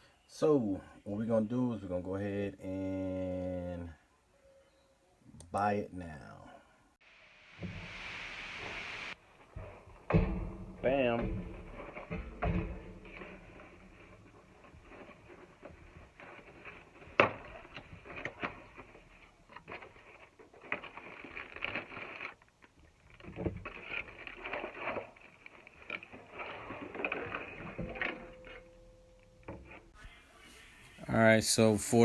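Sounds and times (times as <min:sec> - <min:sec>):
rustling: 0:07.6 - 0:31.0.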